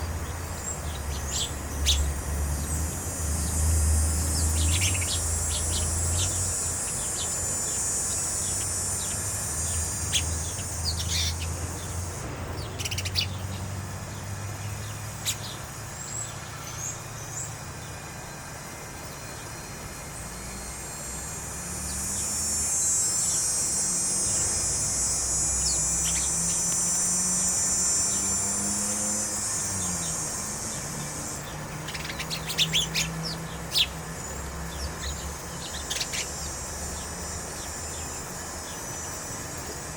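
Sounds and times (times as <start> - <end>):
low hum: 0.0 - 28.4
high hiss: 0.0 - 39.9
songbirds chirping: 0.0 - 39.9.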